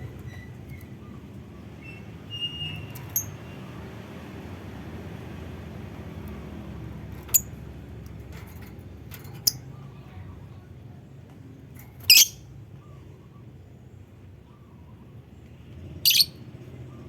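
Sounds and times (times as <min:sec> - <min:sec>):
bird chipping: 0:12.0 - 0:12.4, 0:16.0 - 0:16.4.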